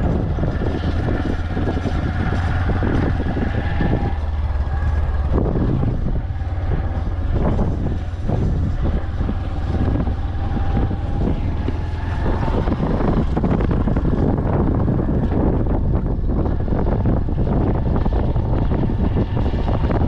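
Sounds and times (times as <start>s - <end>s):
steady deep rumble: 0.0s - 20.0s
wind buffeting microphone: 0.0s - 20.0s.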